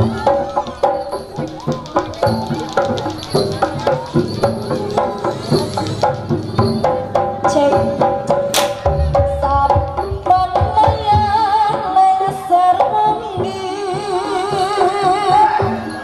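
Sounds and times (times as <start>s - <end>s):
gamelan melodic tones: 0.0s - 10.6s.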